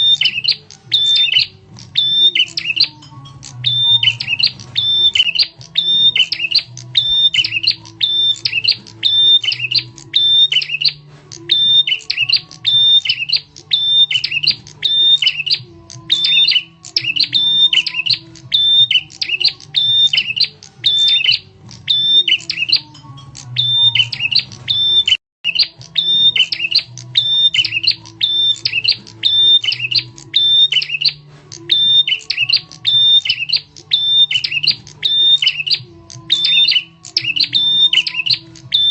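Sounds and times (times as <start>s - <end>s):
bird chirping phrases: 0.0s - 38.9s.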